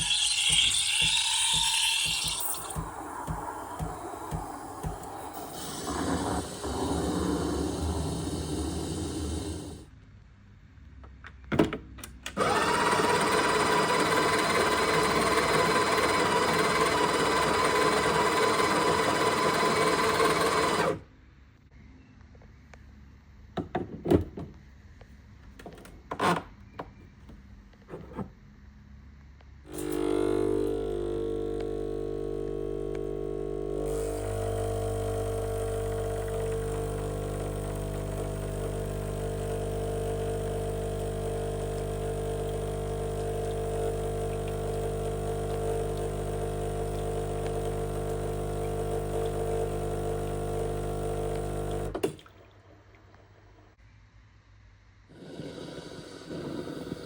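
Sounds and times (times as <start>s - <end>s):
espresso machine pump buzzing: 0.0s - 9.8s, 12.4s - 21.0s, 29.7s - 52.0s.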